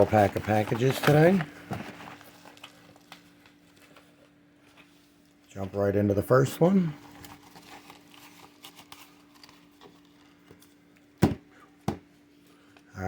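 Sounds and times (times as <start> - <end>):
package rustling and crinkling: 0.0 - 5.4, 6.8 - 11.2.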